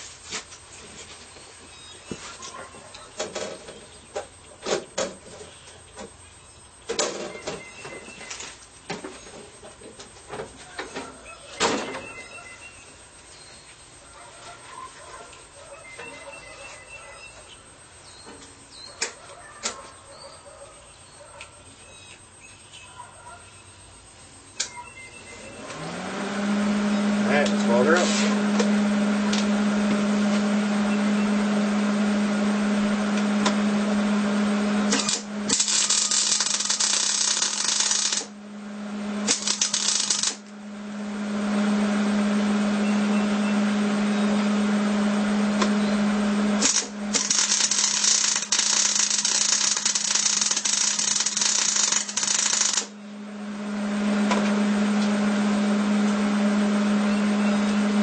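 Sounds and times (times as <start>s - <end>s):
welder hum: 24.6s - 58.0s
welding arc crackle: 34.9s - 38.3s, 39.2s - 40.5s, 46.6s - 52.9s.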